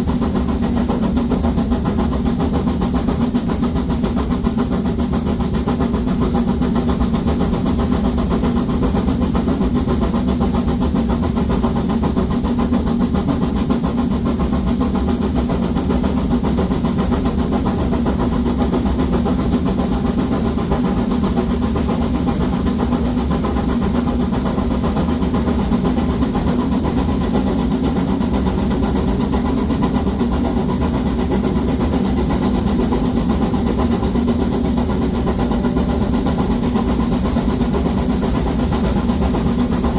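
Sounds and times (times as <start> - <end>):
steam locomotive working uphill: 0.0 - 39.9.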